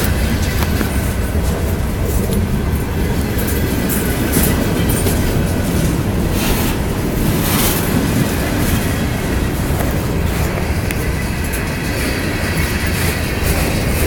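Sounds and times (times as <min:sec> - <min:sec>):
freight train rumbling by: 0:00.0 - 0:14.0.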